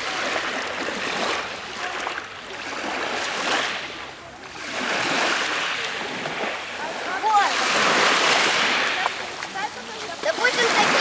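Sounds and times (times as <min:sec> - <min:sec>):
waves washing onto pebble beach: 0:04.6 - 0:11.0.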